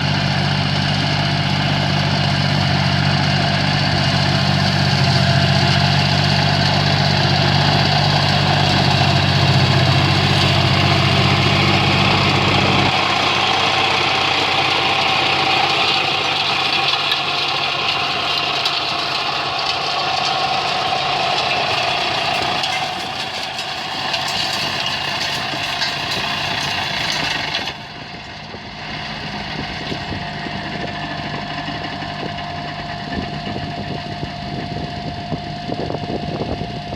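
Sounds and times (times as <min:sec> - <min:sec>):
higher-pitched engine note: 0:00.0 - 0:23.6
deep engine hum: 0:00.0 - 0:25.2, 0:26.1 - 0:36.9.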